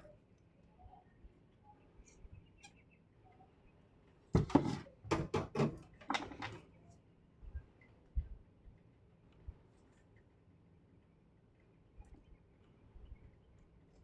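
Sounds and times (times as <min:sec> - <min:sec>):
tools clacking on a workbench: 0:04.4 - 0:06.6.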